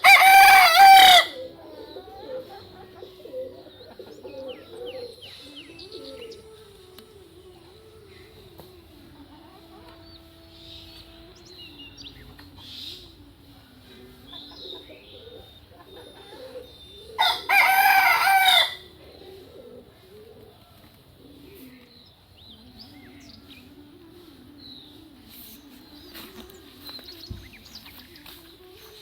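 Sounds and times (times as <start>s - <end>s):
rooster crowing: 0.0s - 1.5s, 16.4s - 18.9s
small birds chirping: 0.8s - 29.0s
low wavering bird call: 9.5s - 13.6s.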